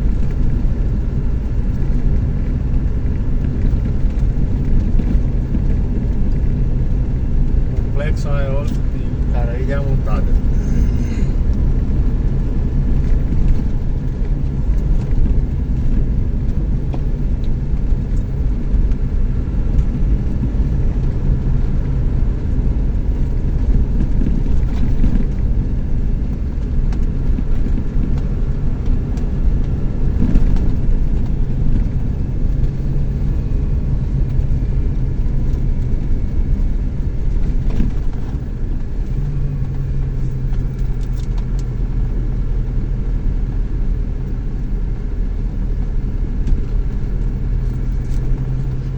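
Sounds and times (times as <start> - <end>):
pickup truck engine and road noise: 0.0 - 48.9
faint hum: 7.9 - 11.9.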